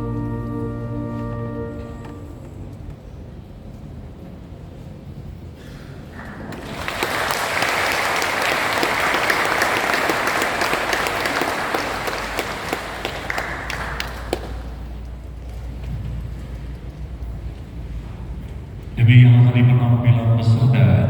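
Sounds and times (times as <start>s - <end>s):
audience applauding: 6.2s - 15.1s.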